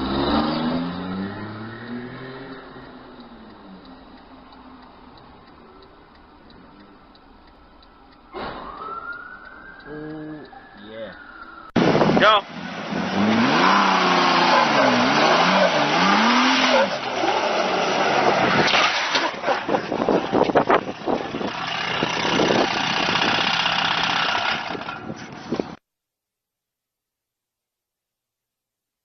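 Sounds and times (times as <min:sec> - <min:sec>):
vehicle engine revving: 0:00.0 - 0:07.2, 0:11.8 - 0:25.4.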